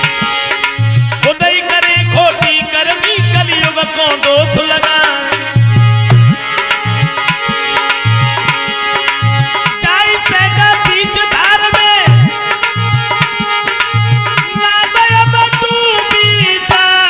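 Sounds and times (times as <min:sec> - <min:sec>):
hand drum rhythm: 0:00.0 - 0:17.0.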